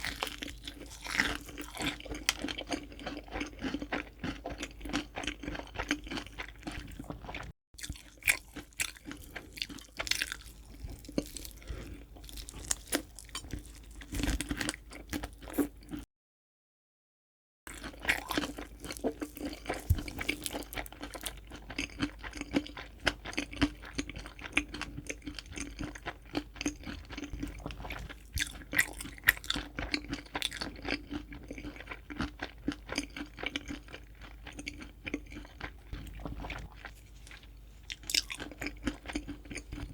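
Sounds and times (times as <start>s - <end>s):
crunching fried chicken: 0.0s - 16.1s, 17.7s - 39.9s.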